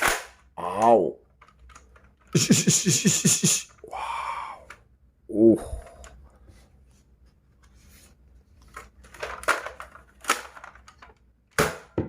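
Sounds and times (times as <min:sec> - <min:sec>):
plastic toy clicks and rustles: 0:00.8 - 0:02.4, 0:08.7 - 0:11.3.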